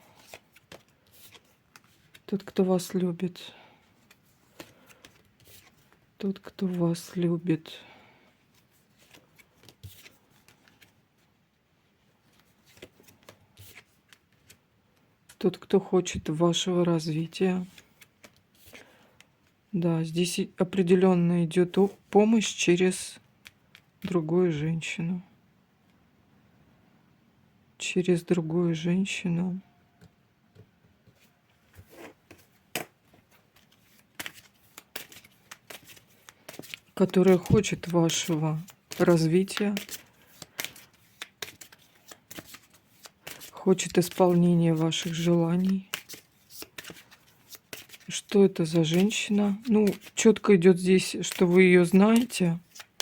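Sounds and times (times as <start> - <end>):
cards rustling and sliding: 0.1 - 3.0, 3.8 - 7.2, 8.4 - 11.3, 12.2 - 14.6, 17.6 - 19.3, 31.0 - 53.0.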